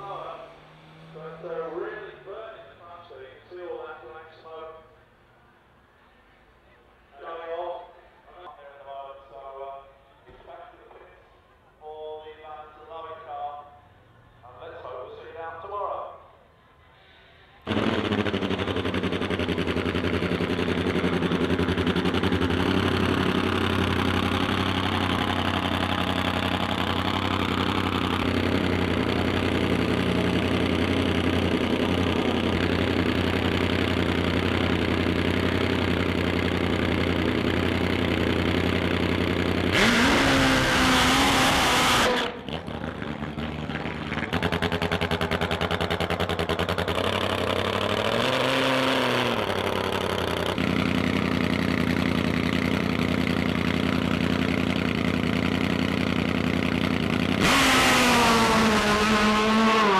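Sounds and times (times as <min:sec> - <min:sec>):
motorcycle engine idling and revving: 0:00.0 - 0:05.2, 0:17.6 - 0:59.9.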